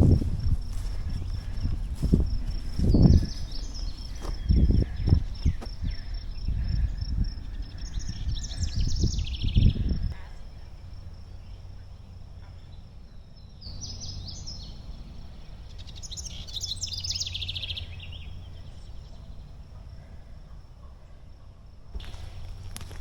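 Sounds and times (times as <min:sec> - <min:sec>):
footsteps on a trail: 0:00.0 - 0:07.9, 0:21.9 - 0:23.0
low background rumble: 0:00.0 - 0:23.0
songbird chirping and trilling: 0:00.0 - 0:23.0.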